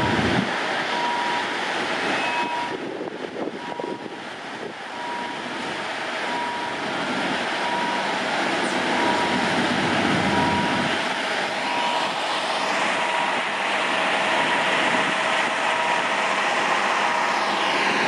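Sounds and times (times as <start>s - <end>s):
passing train roar: 0.0s - 18.0s
short beep: 2.2s - 2.8s, 11.7s - 12.1s.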